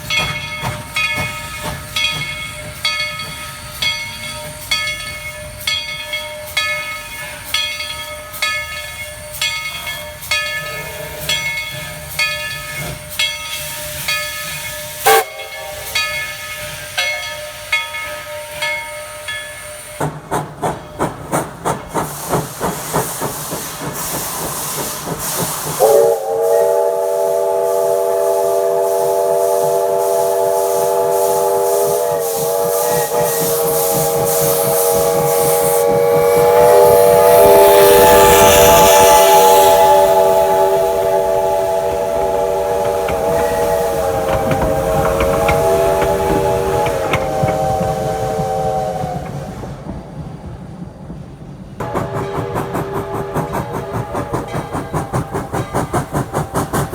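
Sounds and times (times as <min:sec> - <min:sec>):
locomotive bell ringing: 0:00.0 - 0:20.0, 0:30.3 - 0:48.2
steam hiss: 0:00.0 - 0:56.9
chime steam whistle blast: 0:00.1 - 0:20.1, 0:24.4 - 0:49.8, 0:51.8 - 0:56.9
steam exhaust chuffs: 0:10.1 - 0:18.2, 0:19.2 - 0:56.9.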